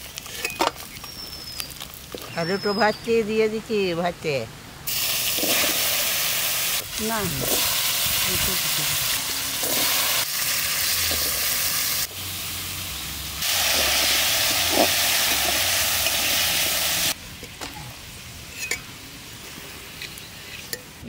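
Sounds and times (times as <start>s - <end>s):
potatoes sizzling in oil: 4.9s - 21.0s.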